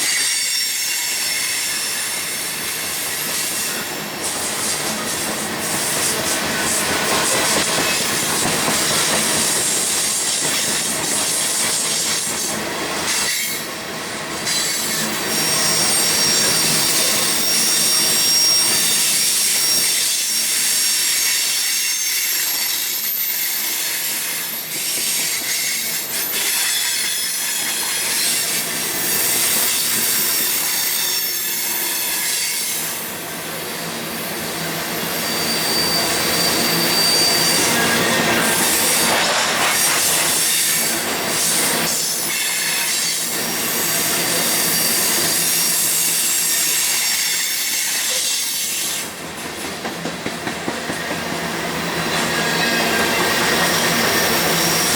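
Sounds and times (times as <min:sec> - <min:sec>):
railroad cars rolling: 0:00.0 - 0:54.9
high-pitched wheel squeal: 0:15.3 - 0:20.6, 0:34.7 - 0:39.1, 0:43.7 - 0:47.0, 0:52.5 - 0:54.9.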